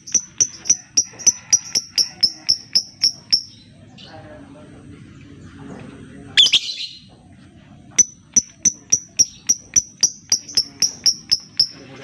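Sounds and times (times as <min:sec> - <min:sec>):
bird ticking call: 0:00.0 - 0:03.7, 0:06.4 - 0:07.0, 0:08.0 - 0:12.0.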